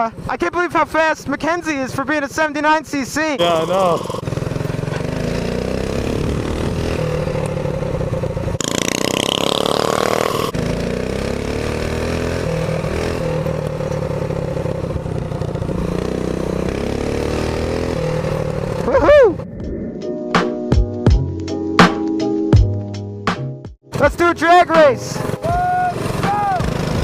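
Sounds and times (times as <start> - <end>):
mini bike engine running: 3.4 - 18.9, 25.0 - 27.0.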